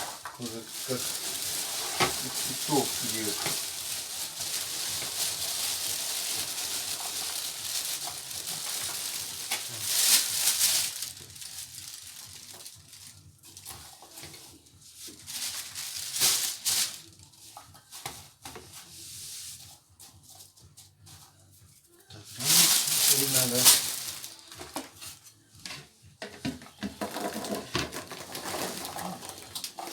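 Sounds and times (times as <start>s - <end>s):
pan sizzling: 0.0s - 12.8s, 22.4s - 24.6s
scrapes or rustles: 0.0s - 29.9s.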